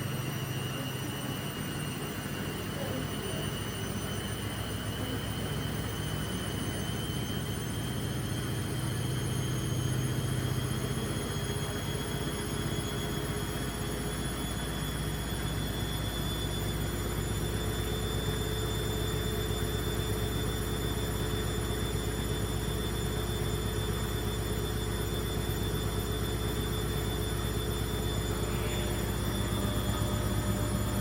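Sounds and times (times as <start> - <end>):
washing machine spin cycle: 0.0 - 31.0.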